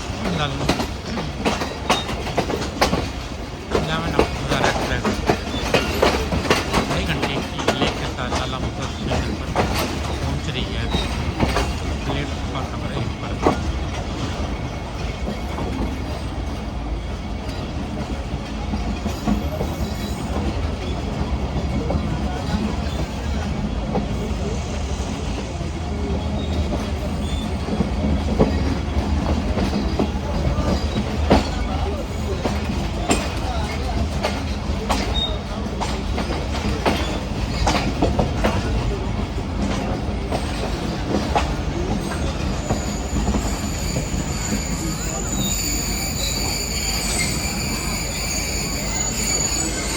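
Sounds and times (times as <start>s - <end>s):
train rumbling on rails: 0.0s - 49.9s
high wheel squeal: 42.0s - 49.9s.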